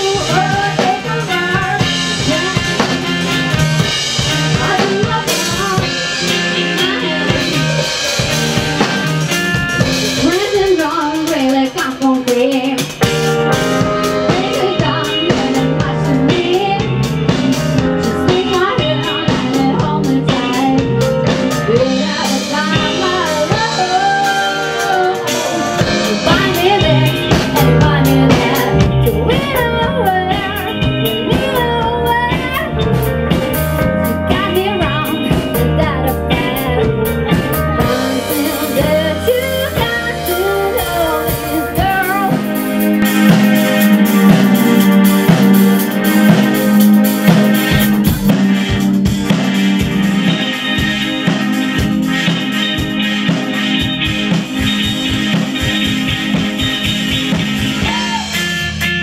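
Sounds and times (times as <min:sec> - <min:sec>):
bass guitar: 0:00.0 - 0:59.0
drum kit: 0:00.0 - 0:59.0
electric guitar: 0:00.0 - 0:59.0
melodic line: 0:13.0 - 0:59.0.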